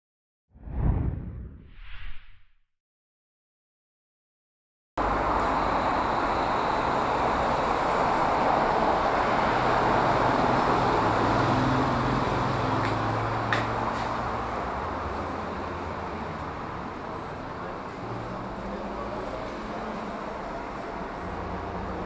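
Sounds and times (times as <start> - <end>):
road traffic noise: 5.0 - 22.0
vehicle engine hum: 5.0 - 22.0.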